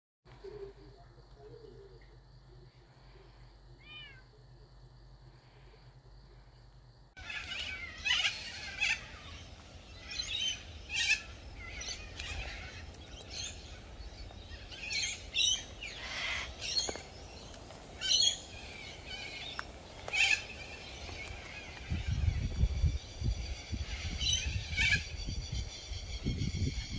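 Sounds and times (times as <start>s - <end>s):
faint steady hum: 0.3s - 21.2s
birds chirping and calling: 7.2s - 26.9s.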